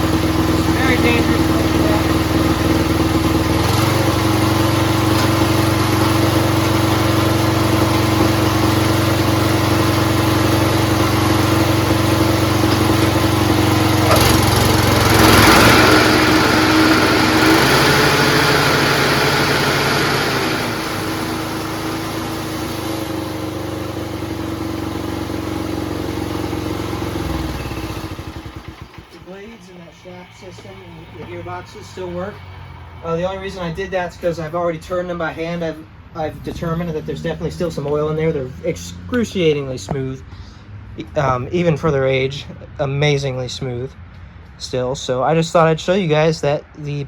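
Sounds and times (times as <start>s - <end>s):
lawn tractor engine running: 0.0s - 35.6s.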